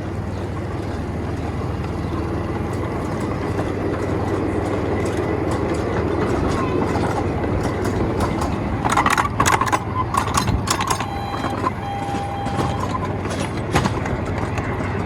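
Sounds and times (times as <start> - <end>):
miniature train rumbling: 0.0 - 15.0
clicks and knocks: 5.6 - 14.7
thin whine: 10.8 - 13.1.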